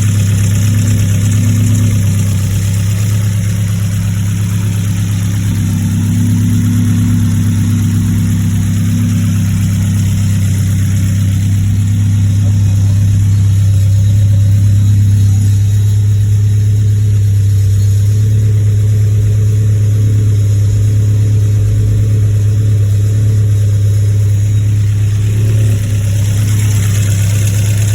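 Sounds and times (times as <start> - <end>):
car engine running steadily: 0.0 - 27.9.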